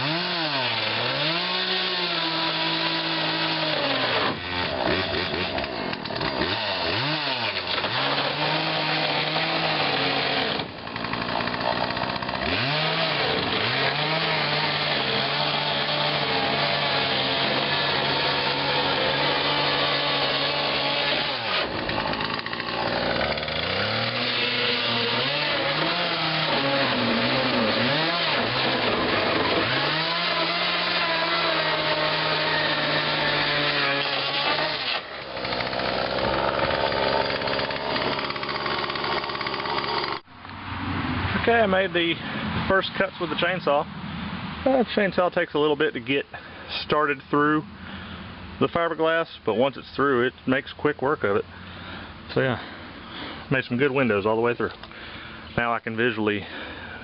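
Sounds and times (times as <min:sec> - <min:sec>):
chainsaw cutting fiberglass: 0:00.0 - 0:40.3.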